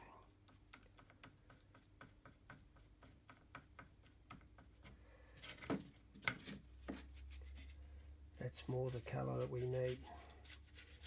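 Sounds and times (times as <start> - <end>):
scrape: 5.3 - 11.0.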